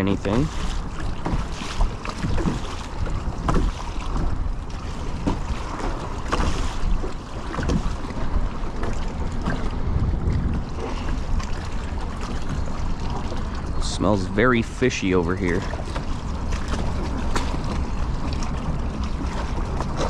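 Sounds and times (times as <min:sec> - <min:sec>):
wind buffeting microphone: 0:00.0 - 0:14.7
water splashing against kayak: 0:00.0 - 0:20.0.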